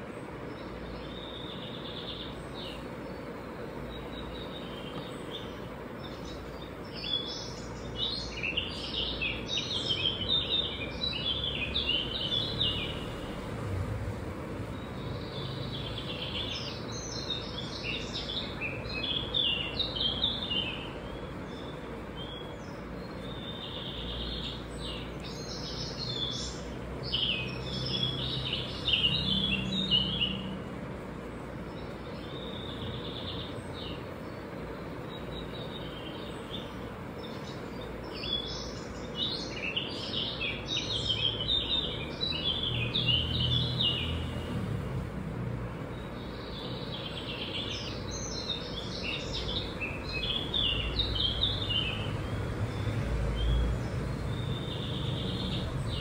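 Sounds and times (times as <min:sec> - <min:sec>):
small birds chirping and twittering: 0:00.0 - 0:56.0.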